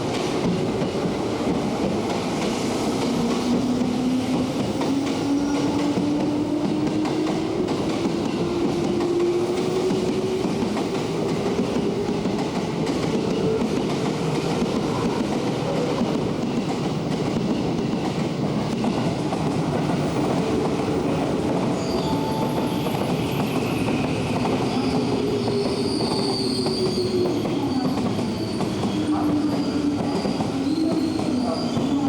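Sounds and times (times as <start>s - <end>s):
train wheels rumbling on rails: 0.0s - 32.0s
high wheel squeal: 21.8s - 32.0s.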